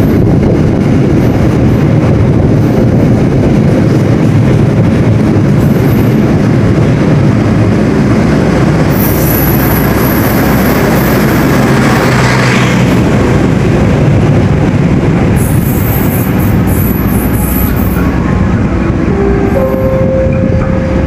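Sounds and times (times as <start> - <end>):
electric train rumbling past: 0.0 - 21.0
high wheel squeals: 8.9 - 11.5, 15.4 - 18.4.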